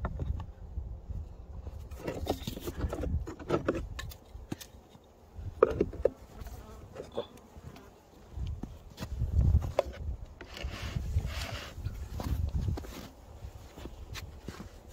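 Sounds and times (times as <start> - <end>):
clicks and knocks from hive: 5.6 - 10.7.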